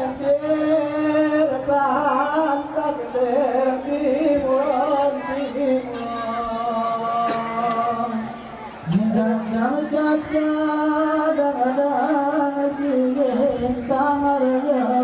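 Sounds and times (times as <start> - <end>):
high wavering vocal singing: 0.0 - 15.0.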